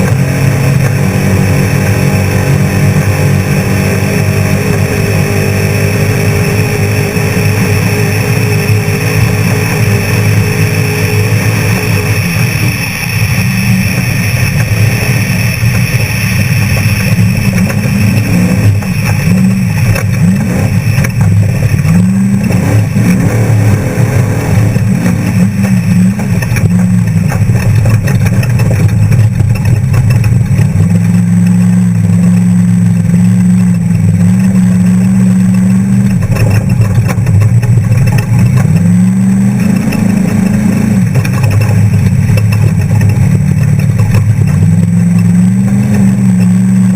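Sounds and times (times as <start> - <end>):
truck engine revving: 0.0 - 46.9.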